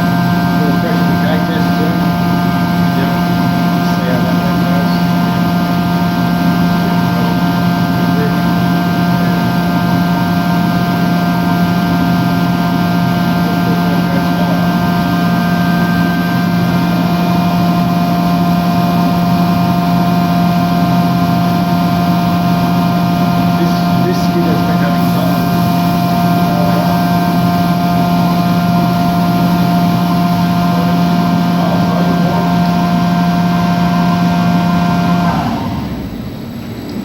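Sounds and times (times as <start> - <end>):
blower humming: 0.0 - 37.0
churning rush of air in water: 0.0 - 37.0.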